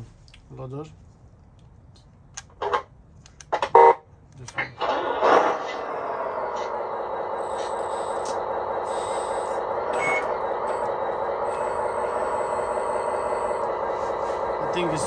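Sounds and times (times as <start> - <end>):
simulated diesel engine idling: 4.8 - 15.0.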